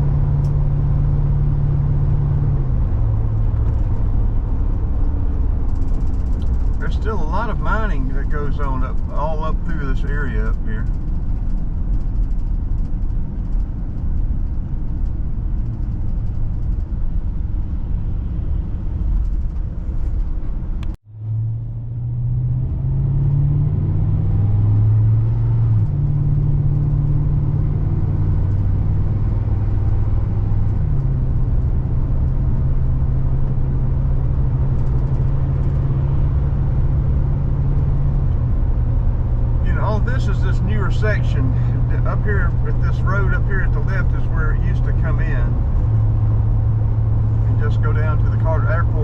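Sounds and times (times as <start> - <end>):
car road noise rumble: 0.0 - 49.0
low engine drone: 0.0 - 49.0.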